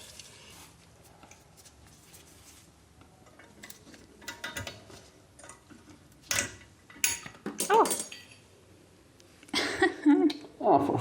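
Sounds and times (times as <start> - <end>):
metal tools clinking: 6.3 - 8.4.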